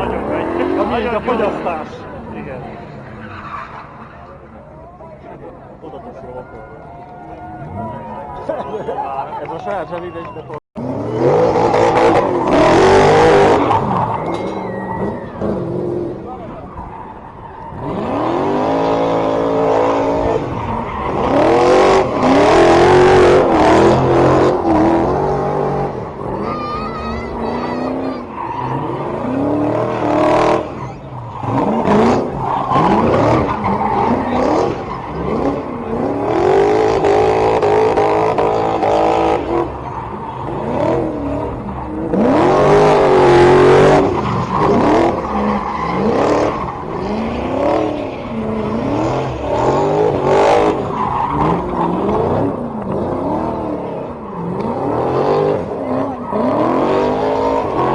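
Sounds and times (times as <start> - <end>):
car engine revving hard: 0.0 - 1.9, 10.8 - 14.2, 17.7 - 57.9
loud tire noise: 0.0 - 57.9.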